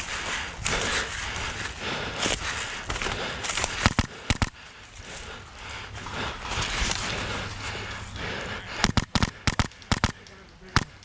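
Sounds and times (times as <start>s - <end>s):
airsoft rifle shots: 3.8s - 4.5s, 8.8s - 11.0s
noisy rustle: 4.9s - 8.6s.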